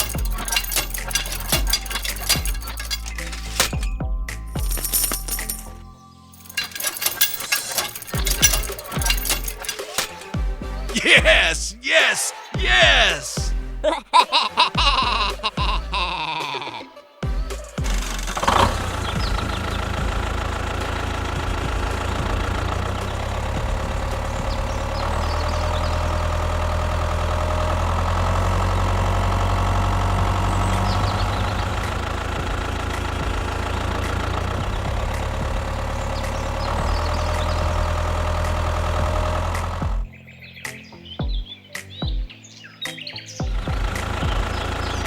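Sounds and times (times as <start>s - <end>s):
small engine running: 0.0s - 3.9s, 17.7s - 40.1s, 43.5s - 45.0s.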